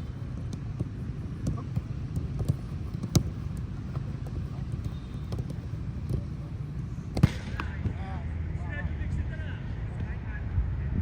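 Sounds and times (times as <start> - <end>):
low steady rumble: 0.0 - 11.0
football kicks thudding: 0.2 - 6.4, 7.1 - 8.0.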